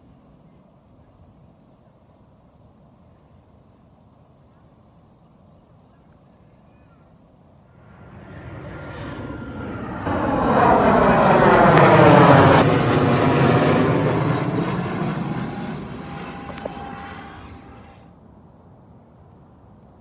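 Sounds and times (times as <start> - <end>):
military jet flying over: 7.8 - 18.1.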